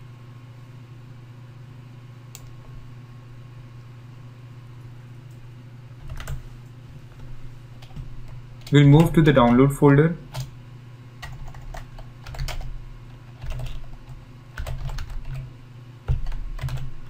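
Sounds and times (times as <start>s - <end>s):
low electrical hum: 0.0s - 17.0s
computer keyboard clicks: 6.0s - 6.4s, 7.8s - 9.6s, 10.3s - 10.5s, 11.2s - 12.7s, 13.3s - 15.5s, 16.1s - 16.9s.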